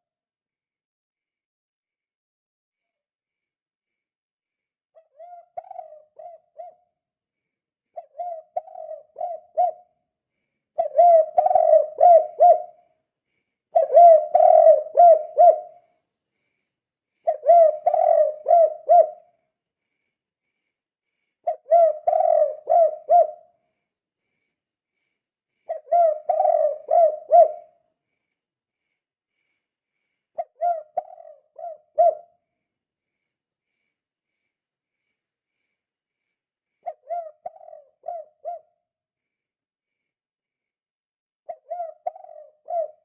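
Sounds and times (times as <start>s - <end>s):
dove cooing: 5.0s - 6.9s, 8.0s - 9.9s, 10.8s - 12.8s, 13.7s - 15.9s, 17.2s - 19.3s, 21.4s - 23.5s, 25.7s - 27.8s, 30.4s - 32.3s, 36.8s - 38.8s, 41.5s - 43.0s.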